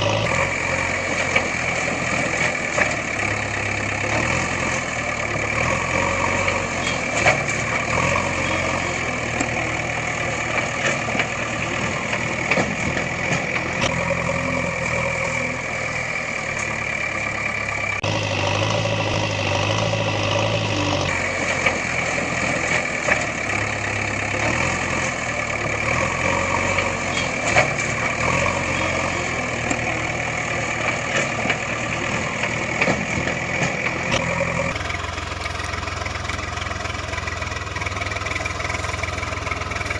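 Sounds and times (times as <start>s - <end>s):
vehicle engine idling: 0.0s - 39.9s.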